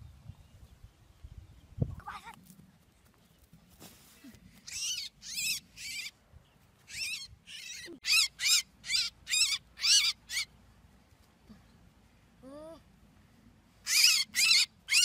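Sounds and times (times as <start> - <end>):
small bird distress calls: 4.6 - 6.2, 6.8 - 10.6, 13.8 - 15.0.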